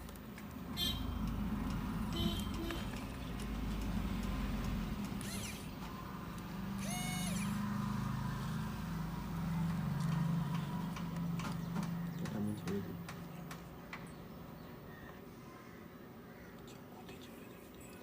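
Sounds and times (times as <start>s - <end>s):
vehicle engines running: 0.0s - 14.7s
car horn toot: 0.8s - 1.1s, 2.1s - 2.9s.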